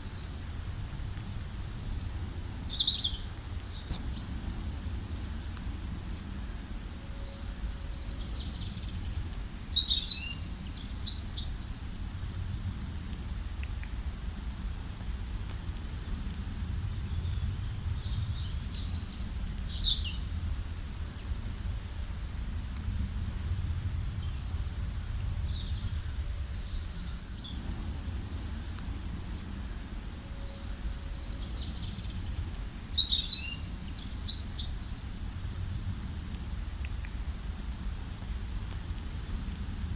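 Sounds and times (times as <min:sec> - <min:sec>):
low background rumble: 0:00.0 - 0:39.9
birds chirping: 0:01.8 - 0:12.0, 0:24.2 - 0:35.3.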